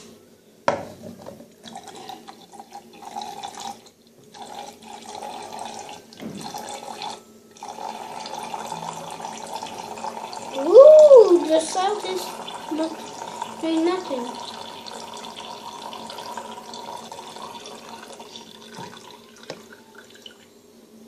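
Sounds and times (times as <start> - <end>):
water pouring into a container: 1.6 - 20.4.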